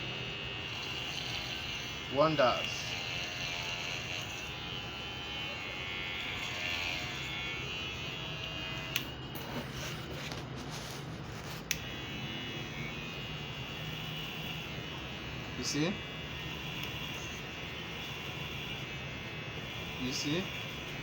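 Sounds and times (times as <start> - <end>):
electric hair clipper buzzing: 0.0 - 21.0.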